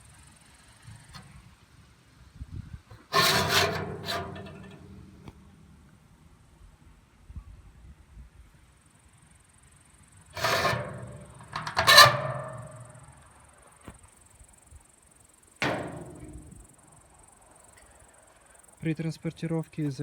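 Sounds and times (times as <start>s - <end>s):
metal camping stove parts clanking: 3.0s - 5.8s, 10.4s - 13.2s, 15.6s - 16.7s.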